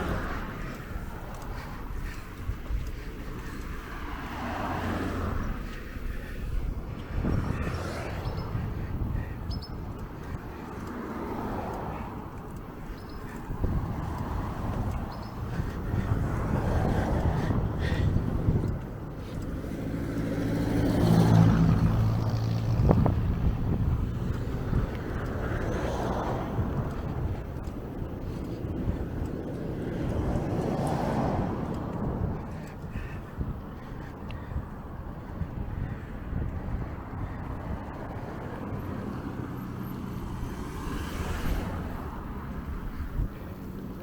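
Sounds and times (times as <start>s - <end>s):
road and wind noise: 0.0s - 44.0s
vehicle engine passing by: 19.4s - 27.3s.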